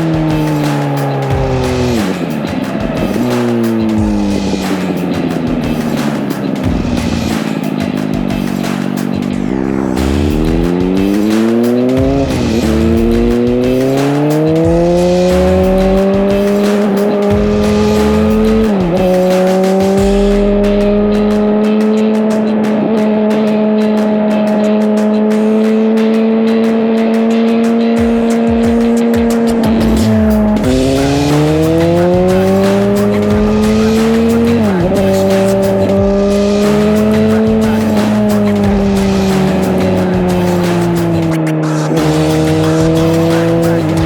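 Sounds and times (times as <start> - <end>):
motorcycle engine accelerating: 0.0 - 44.0.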